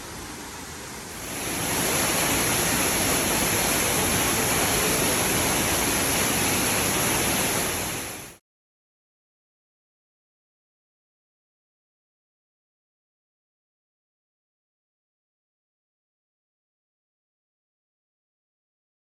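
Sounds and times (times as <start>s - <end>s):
waterfall rushing: 0.0s - 8.4s.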